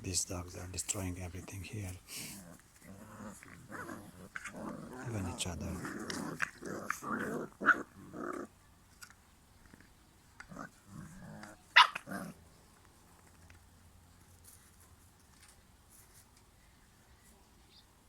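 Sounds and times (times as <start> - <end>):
puppies growling and barking: 2.2 - 8.6, 10.4 - 12.5.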